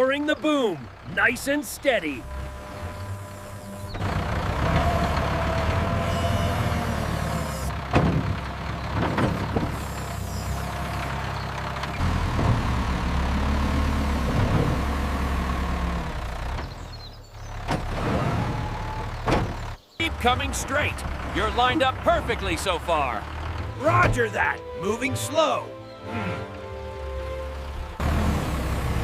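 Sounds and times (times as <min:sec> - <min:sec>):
telehandler engine running: 0:00.0 - 0:29.0
faint hydraulic whine: 0:02.2 - 0:04.2.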